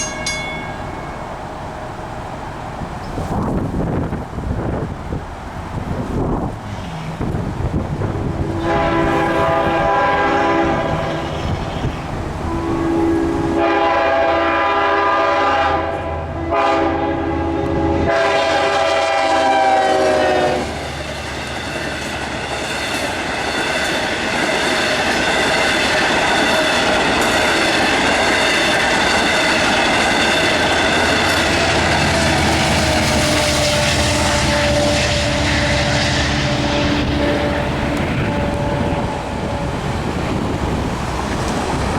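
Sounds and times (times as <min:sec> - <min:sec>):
train wheels clattering on rails: 0:00.0 - 0:12.5, 0:20.6 - 0:41.9
train horn blasts: 0:08.2 - 0:20.8, 0:30.5 - 0:39.8.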